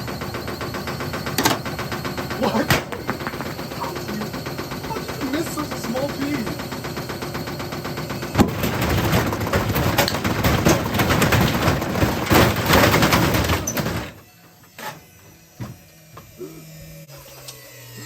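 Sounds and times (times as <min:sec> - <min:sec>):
washing machine spinning: 0:00.0 - 0:16.1
objects clattering in drum: 0:01.2 - 0:14.2
faint hum: 0:02.0 - 0:07.6.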